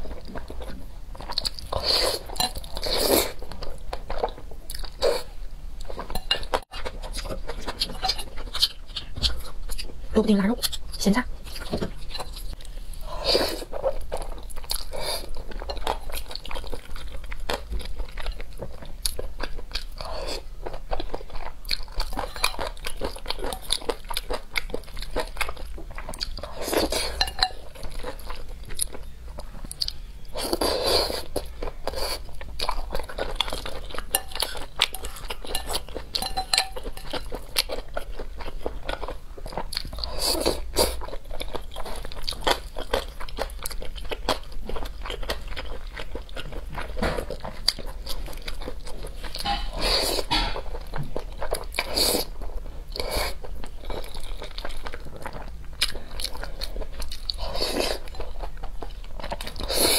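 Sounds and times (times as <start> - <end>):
chewing and biting food: 13.6 - 59.9.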